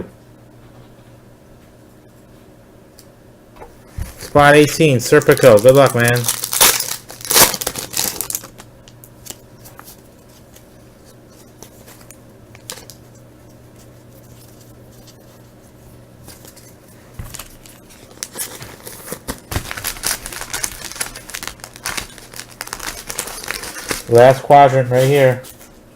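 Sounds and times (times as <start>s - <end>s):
wrapper crinkling and tearing: 4.2s - 10.7s, 17.3s - 25.7s.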